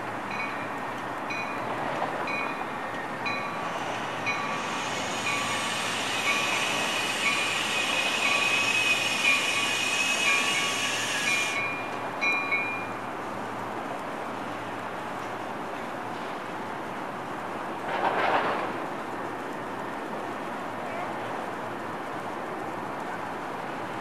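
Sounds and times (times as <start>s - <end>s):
train wheels and brakes squealing: 0.3s - 12.9s.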